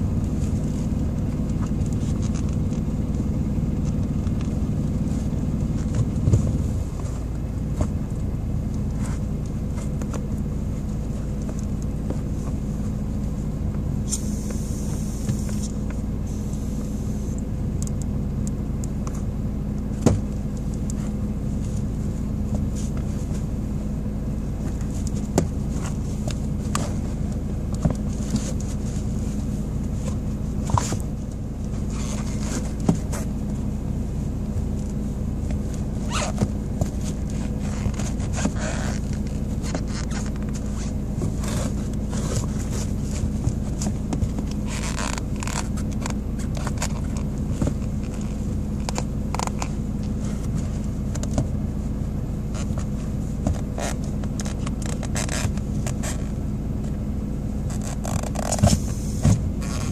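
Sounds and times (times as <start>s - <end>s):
car engine running: 0.0s - 59.9s
shoe clicking on pedals: 52.5s - 56.9s.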